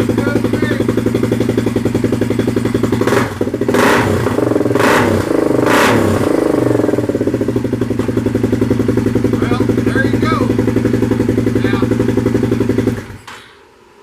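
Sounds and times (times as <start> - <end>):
engine revving: 0.0 - 13.2
single-cylinder engine idling: 0.0 - 13.3
man talking: 0.1 - 0.9, 9.3 - 10.6, 11.5 - 12.0.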